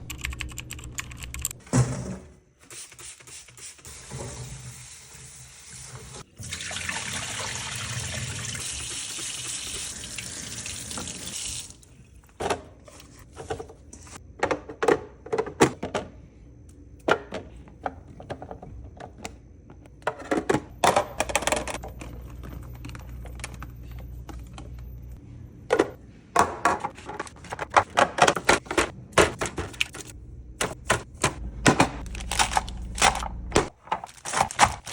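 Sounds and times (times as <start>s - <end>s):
water running from a tap: 3.9s - 11.9s
containers and groceries clattering: 17.0s - 23.6s, 25.7s - 34.9s.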